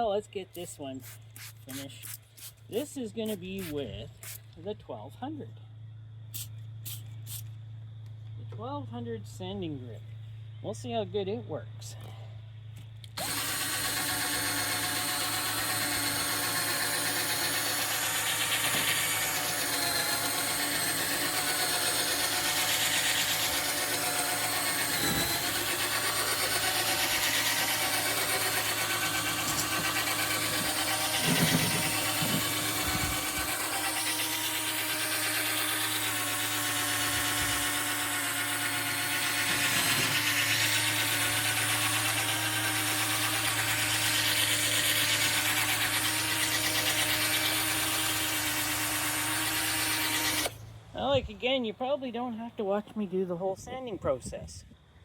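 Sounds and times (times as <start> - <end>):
power drill sanding plastic: 1.0 - 2.6, 13.2 - 50.6.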